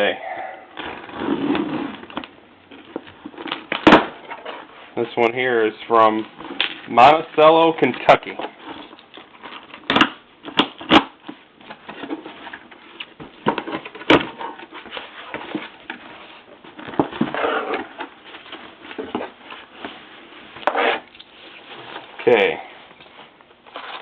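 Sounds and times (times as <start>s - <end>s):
packing peanuts rustling: 23.6s - 24.0s.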